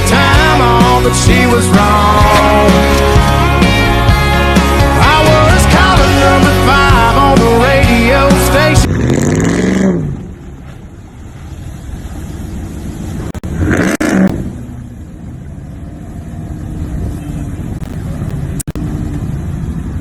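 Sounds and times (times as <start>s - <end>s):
truck engine rumbling and revving: 0.0s - 20.0s.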